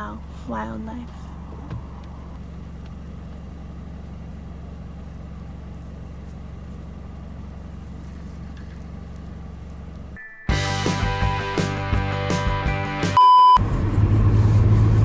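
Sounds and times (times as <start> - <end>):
car road and engine rumble: 0.0 - 15.0
bright beeping tones: 10.2 - 11.0
loud music: 10.3 - 13.2.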